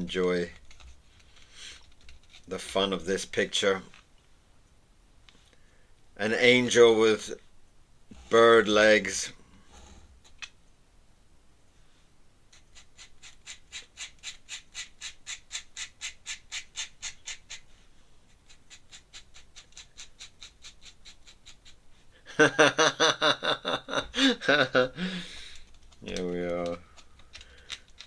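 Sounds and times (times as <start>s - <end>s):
man talking: 0.0s - 0.6s, 2.5s - 3.9s, 6.2s - 7.4s, 8.3s - 9.4s, 26.0s - 26.8s.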